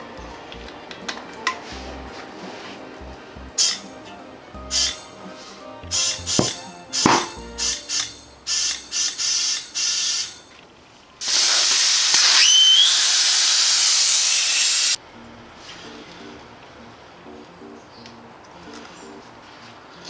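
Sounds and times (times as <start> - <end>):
compressed air hissing from nozzle: 11.2 - 15.0
falling whistle: 11.2 - 15.0.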